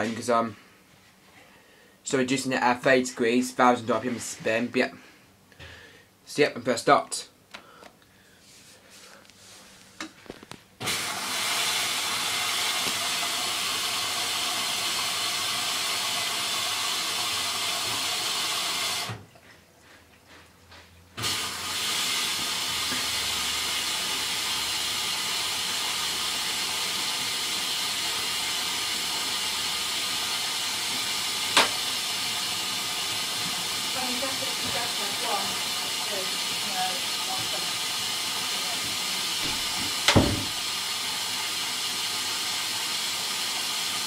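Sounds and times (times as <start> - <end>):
washing machine filling with water: 10.8 - 19.2, 21.2 - 44.0.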